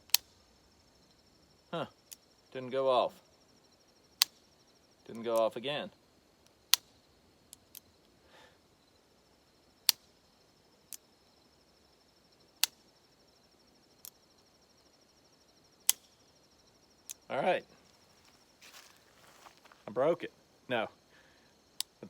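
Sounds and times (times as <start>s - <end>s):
light clicks of revolver action: 0.1s - 0.4s, 4.2s - 4.6s, 6.4s - 8.2s, 9.8s - 10.2s, 10.9s - 11.1s, 12.6s - 12.9s, 13.9s - 14.2s, 15.8s - 16.3s, 17.0s - 17.3s, 21.8s - 22.0s.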